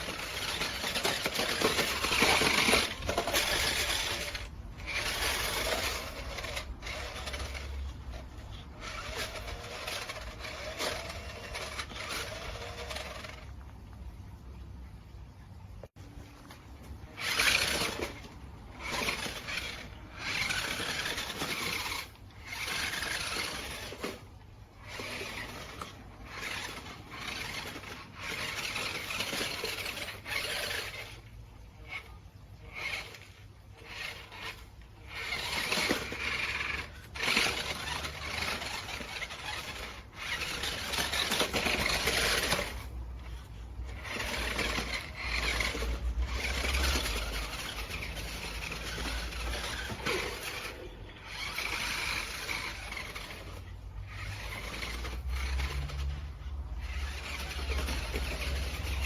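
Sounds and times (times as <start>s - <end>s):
toy truck motor rattling: 0.0s - 14.7s, 15.7s - 59.0s.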